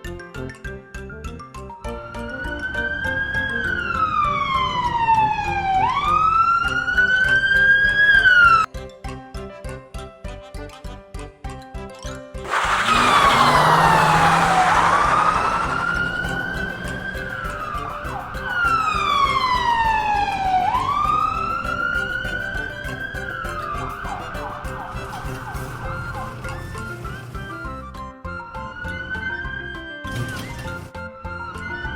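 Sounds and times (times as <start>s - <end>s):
siren wailing: 2.1s - 8.7s, 12.5s - 27.0s, 28.4s - 29.8s.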